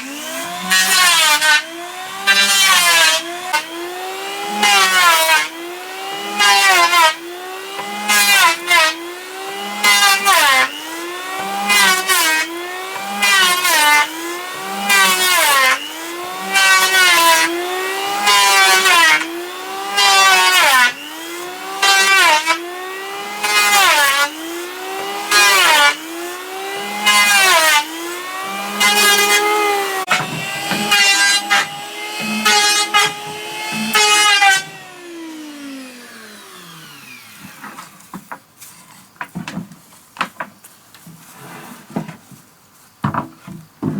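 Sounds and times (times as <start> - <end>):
electric planer cutting wood: 0.0 - 38.4
planer motor winding down: 29.4 - 37.6.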